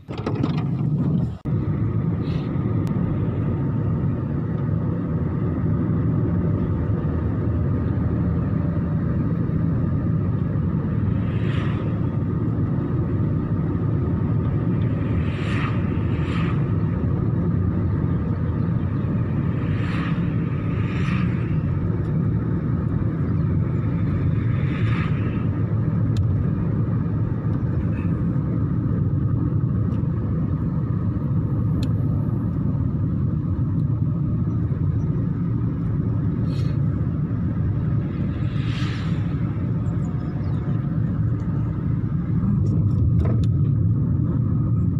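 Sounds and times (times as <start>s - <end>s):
steady low rumble: 0.0s - 44.9s.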